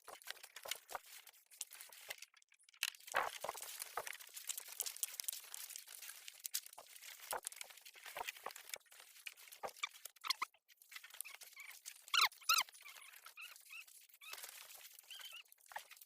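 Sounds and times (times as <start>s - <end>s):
crackling and rustling: 0.0s - 16.0s
high falling squeaks: 15.0s - 15.4s.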